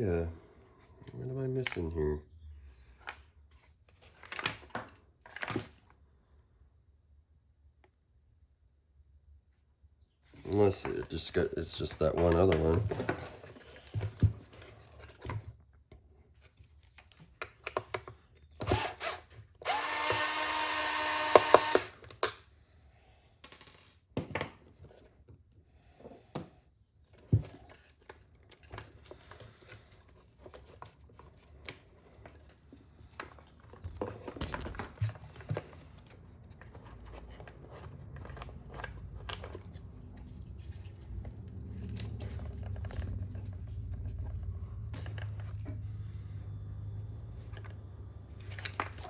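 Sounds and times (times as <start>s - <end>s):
electric screwdriver whirring: 18.6s - 22.0s.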